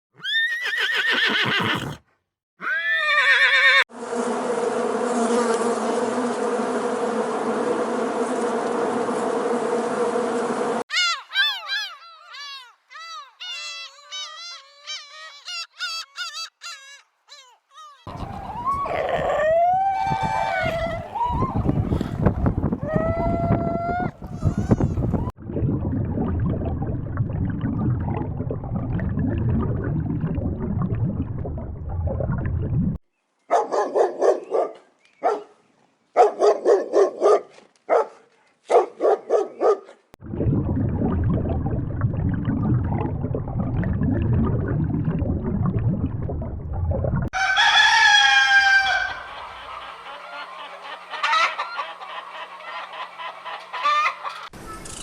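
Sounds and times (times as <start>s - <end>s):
chickens clucking: 18.1s - 19.5s, 20.2s - 22.6s, 48.1s - 54.6s
rooster crowing: 18.1s - 22.2s, 47.4s - 52.6s
low steady rumbling: 18.1s - 33.0s, 40.2s - 47.3s.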